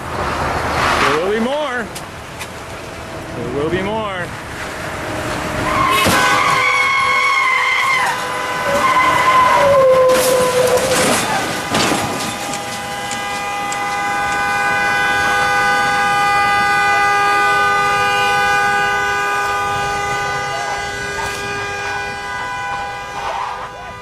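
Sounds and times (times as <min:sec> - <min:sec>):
vehicle horn sounding: 0:05.4 - 0:24.0.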